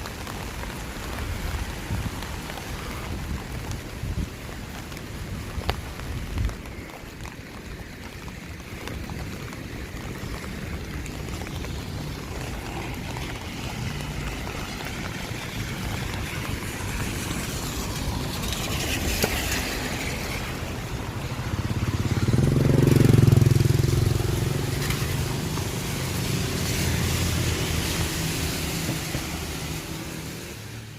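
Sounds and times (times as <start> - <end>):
rain hiss: 0.0 - 30.9
traffic on wet streets: 0.0 - 30.9
vehicle engine passing: 12.5 - 30.8.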